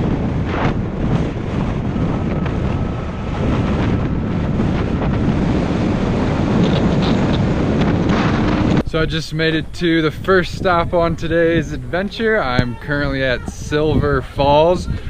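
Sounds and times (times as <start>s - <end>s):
motorbike engine and road noise: 0.0s - 9.0s
wind buffeting microphone: 0.0s - 15.0s.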